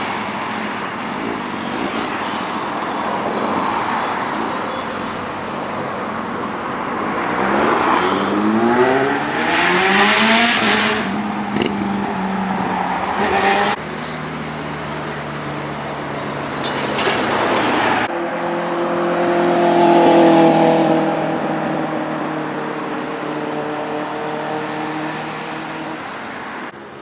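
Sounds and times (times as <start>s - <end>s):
traffic noise: 0.0s - 27.0s
motorcycle engine accelerating: 7.2s - 14.2s.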